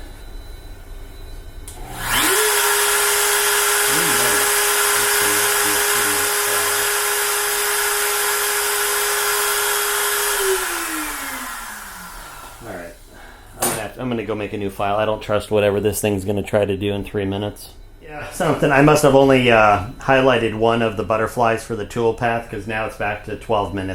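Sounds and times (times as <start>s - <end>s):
router spindle motor whine: 1.7s - 12.8s
short lower whirs: 1.7s - 13.2s.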